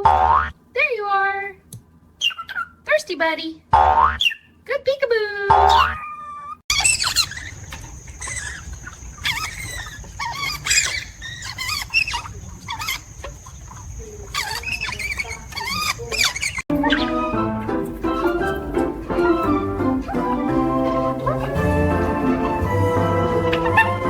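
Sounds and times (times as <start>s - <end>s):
parrot chirping and squealing: 2.2s - 2.8s, 4.1s - 4.5s, 5.6s - 17.3s, 23.4s - 24.0s.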